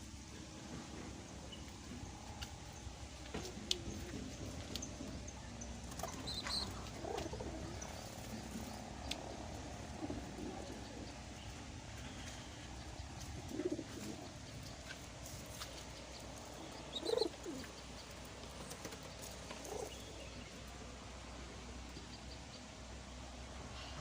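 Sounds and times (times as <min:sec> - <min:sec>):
doves cooing: 0:03.4 - 0:20.2.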